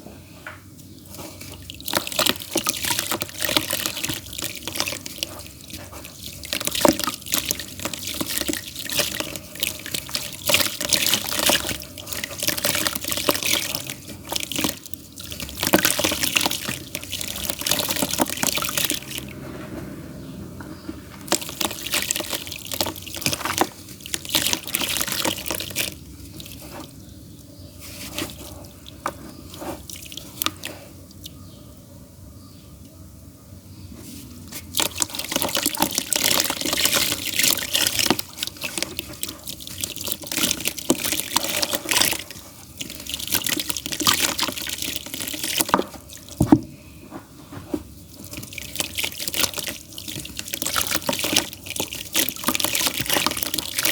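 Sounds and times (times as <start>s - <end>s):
damp clay crumbling: 1.0s - 19.3s, 21.2s - 27.0s.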